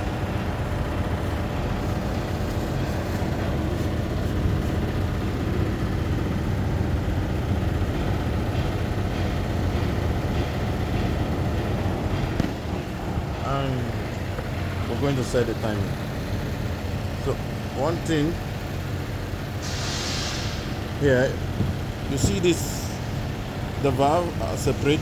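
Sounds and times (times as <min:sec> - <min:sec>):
low engine rumble: 0:00.0 - 0:25.0.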